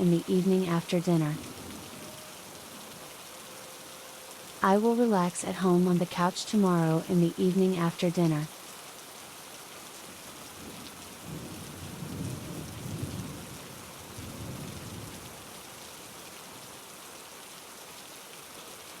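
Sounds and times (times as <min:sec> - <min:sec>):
steady rain falling: 0:00.0 - 0:19.0
low roll of thunder: 0:10.6 - 0:15.2.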